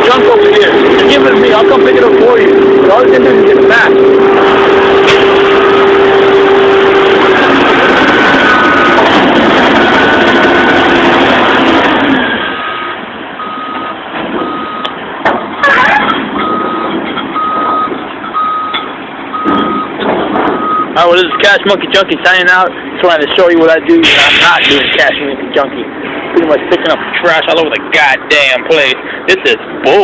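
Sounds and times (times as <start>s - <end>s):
garbage truck engine running: 0.0s - 28.0s
loud metal clank: 5.0s - 5.6s, 18.8s - 20.7s
backup alarm beeping: 12.5s - 15.0s, 16.4s - 21.6s.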